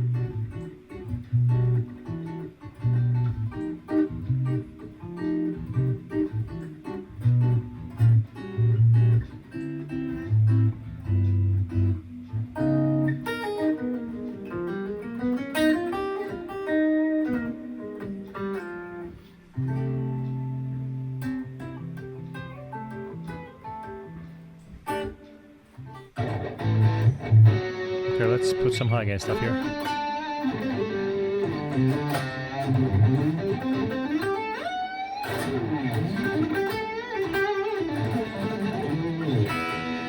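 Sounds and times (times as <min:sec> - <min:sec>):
electric guitar playing latin figure: 0:00.0 - 0:40.0.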